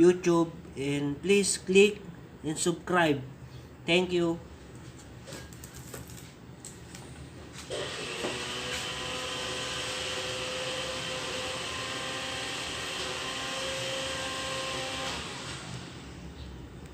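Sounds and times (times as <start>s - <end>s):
small motor whining: 7.7s - 16.2s.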